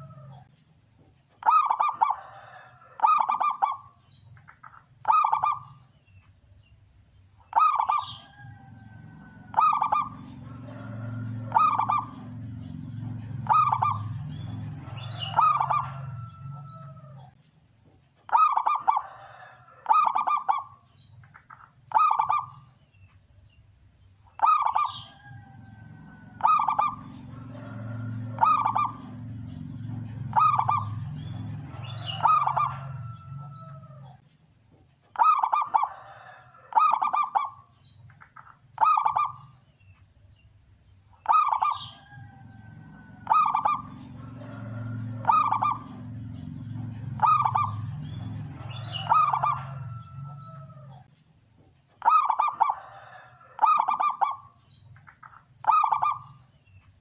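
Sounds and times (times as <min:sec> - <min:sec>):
zebra dove cooing: 0:00.0 - 0:00.5, 0:01.4 - 0:05.8, 0:07.5 - 0:17.4, 0:18.3 - 0:22.7, 0:24.4 - 0:34.2, 0:35.2 - 0:39.5, 0:41.2 - 0:51.1, 0:52.0 - 0:56.4
low rumble: 0:08.6 - 0:17.3, 0:25.4 - 0:34.2, 0:42.2 - 0:51.0.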